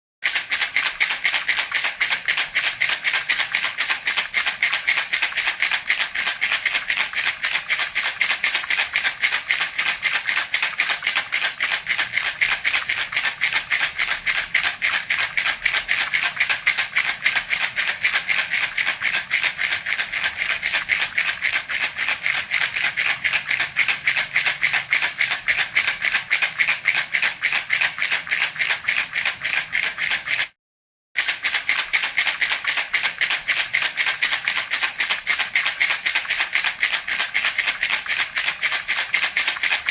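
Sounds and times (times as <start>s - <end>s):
baby rattle shaken: 0.2s - 30.6s, 31.2s - 39.9s.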